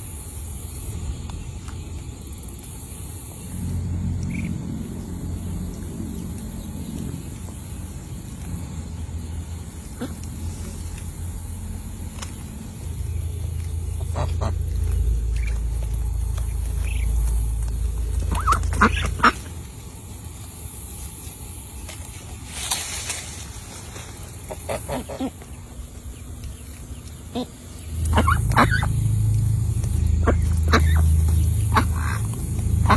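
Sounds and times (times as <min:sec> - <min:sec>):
low rumble: 0:00.0 - 0:32.9
waterfowl calling: 0:09.6 - 0:20.0, 0:24.3 - 0:32.9.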